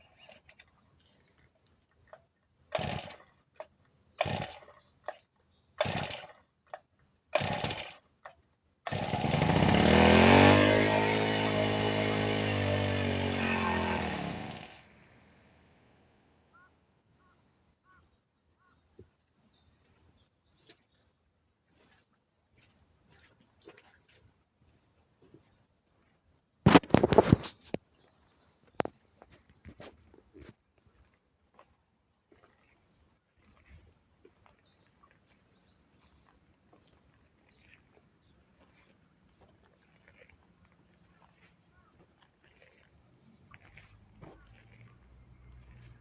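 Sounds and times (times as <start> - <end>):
recoil starter pulls: 2.1 - 5.2, 5.8 - 15.0
small engine running: 2.7 - 3.3, 4.2 - 5.2, 5.8 - 6.4, 7.4 - 8.0, 8.9 - 15.4, 41.2 - 46.0.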